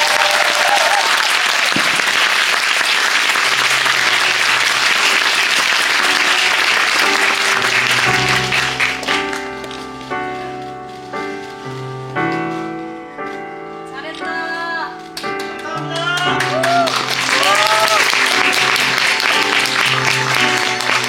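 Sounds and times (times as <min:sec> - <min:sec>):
audience applauding: 0:00.0 - 0:09.5, 0:15.2 - 0:21.0
music with held notes: 0:03.3 - 0:21.0.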